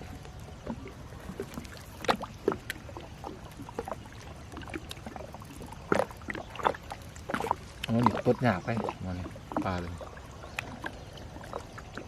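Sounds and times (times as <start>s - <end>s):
water pouring and dripping: 0.0s - 12.0s.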